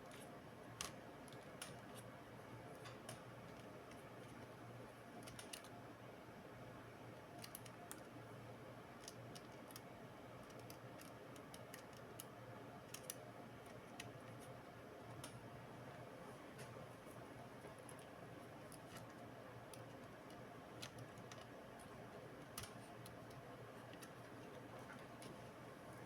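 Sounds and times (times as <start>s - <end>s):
small parts and tools clicking: 10.4s - 13.2s, 18.7s - 24.3s.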